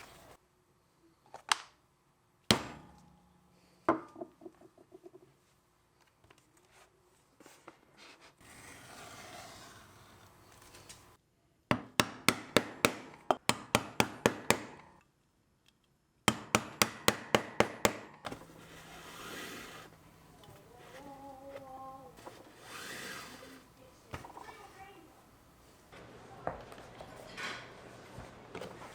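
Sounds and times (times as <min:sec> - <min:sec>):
hammer striking leather: 0:02.5 - 0:03.2, 0:11.7 - 0:14.9, 0:16.3 - 0:18.6
rubbing on leather: 0:18.4 - 0:20.0.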